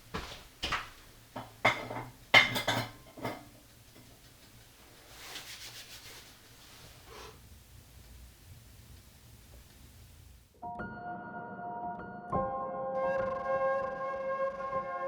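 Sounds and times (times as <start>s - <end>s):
kitchenware clinking: 0.6s - 4.5s
soft rustling: 4.6s - 7.4s.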